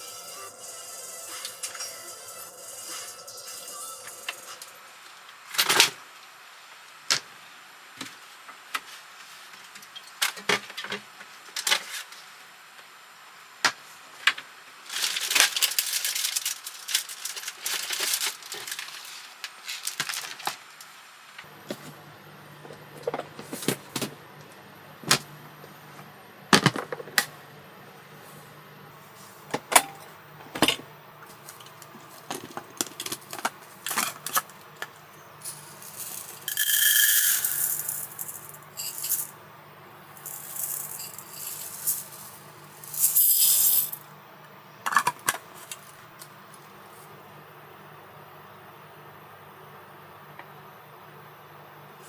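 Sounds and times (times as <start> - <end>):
objects clicking and rattling: 35.9 - 39.3.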